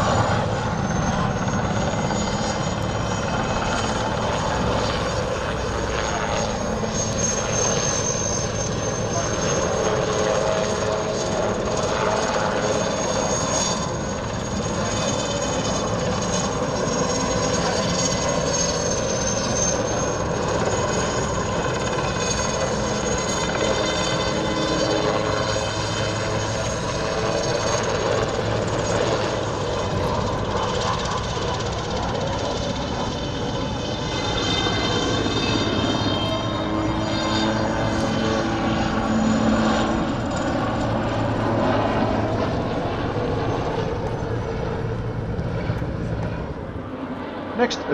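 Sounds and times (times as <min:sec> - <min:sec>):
helicopter engine rumble: 0:00.0 - 0:47.9
helicopter turbine whine: 0:00.0 - 0:47.9.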